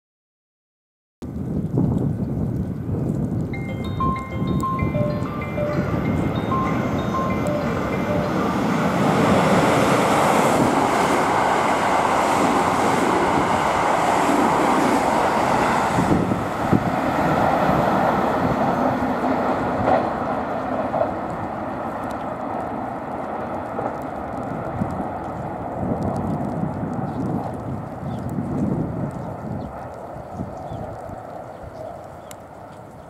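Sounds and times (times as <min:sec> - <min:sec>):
wind buffeting microphone: 0:01.2 - 0:33.0
train wheels and motors rumbling: 0:01.4 - 0:31.2.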